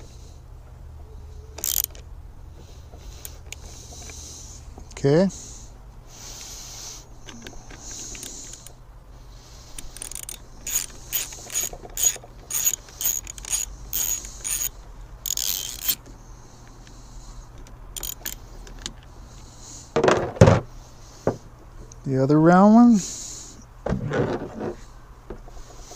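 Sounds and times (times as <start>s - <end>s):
hand ratchet clicking: 1.6s - 2.0s, 3.1s - 4.2s, 7.2s - 8.8s, 9.7s - 17.0s, 17.6s - 19.1s.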